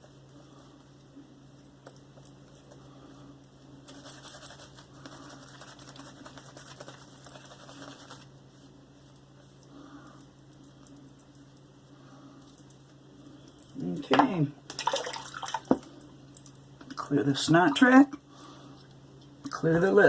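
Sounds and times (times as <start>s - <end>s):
shaving brush working lather: 3.8s - 8.3s.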